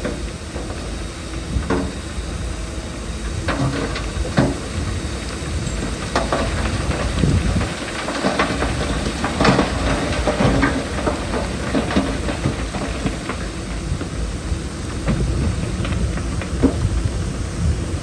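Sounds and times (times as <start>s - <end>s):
diesel machinery rumbling: 0.0s - 18.0s
metal and stone clanking: 5.7s - 13.6s.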